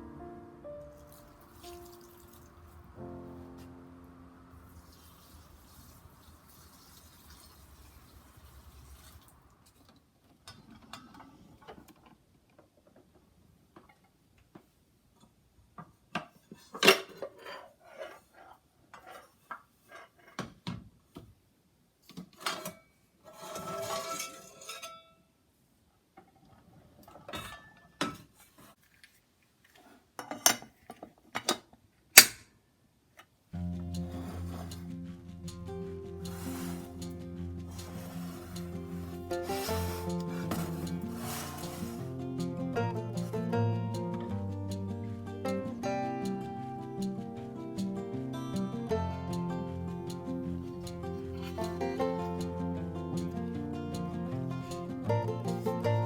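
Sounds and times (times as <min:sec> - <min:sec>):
pots and dishes clinking: 0:16.5 - 0:17.6, 0:23.4 - 0:25.1, 0:27.3 - 0:28.3, 0:33.6 - 0:42.2
rustling: 0:33.6 - 0:42.5.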